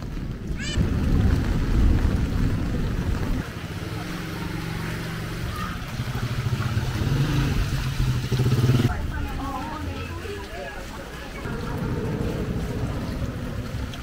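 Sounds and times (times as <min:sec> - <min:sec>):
wind buffeting microphone: 0:00.0 - 0:03.6
heavy rain: 0:00.0 - 0:14.0.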